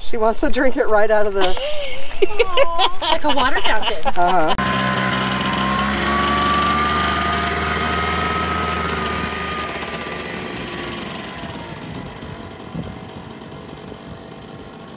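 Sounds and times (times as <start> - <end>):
engine running with faint whine: 4.6 - 14.9.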